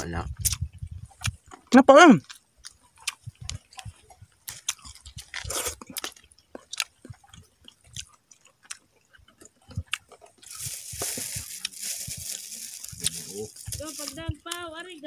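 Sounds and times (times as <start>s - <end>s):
man chewing food: 0.3s - 14.5s.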